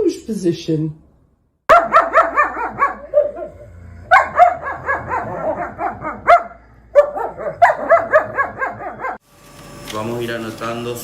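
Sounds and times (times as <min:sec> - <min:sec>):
dog yapping: 0:01.7 - 0:09.2.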